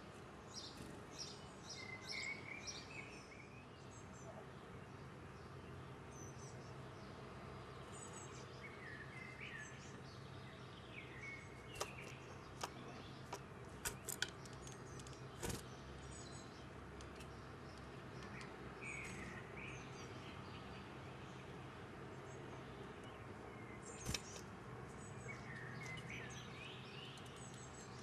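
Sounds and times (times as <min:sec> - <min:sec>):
songbirds chirping: 0:00.0 - 0:28.0.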